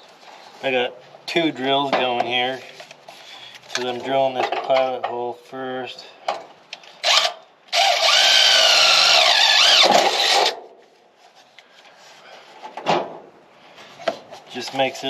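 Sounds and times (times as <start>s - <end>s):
power drill drilling: 7.0s - 10.5s.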